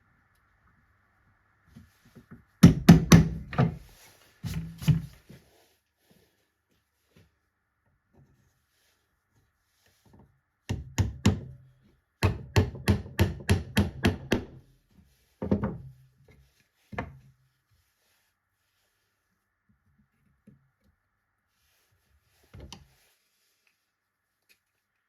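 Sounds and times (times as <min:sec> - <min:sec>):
hammer striking wood: 0:02.6 - 0:03.8, 0:12.2 - 0:14.6.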